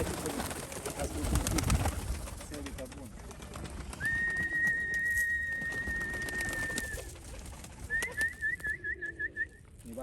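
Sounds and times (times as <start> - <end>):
person whistling: 4.0 - 6.9, 7.9 - 9.6
pigeons cooing: 5.7 - 9.6.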